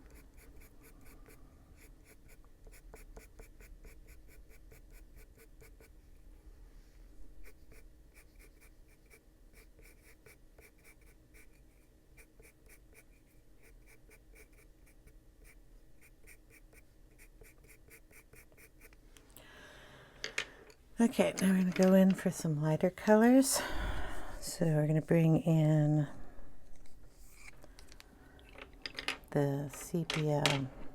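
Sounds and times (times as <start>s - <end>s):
pencil shading on paper: 0.0s - 6.0s, 7.4s - 18.9s.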